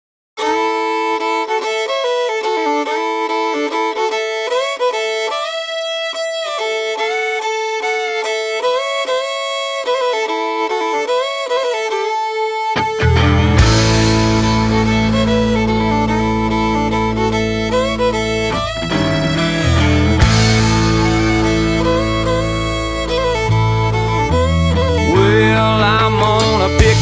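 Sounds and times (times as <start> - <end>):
fiddle playing slow melody: 0.4 - 27.0.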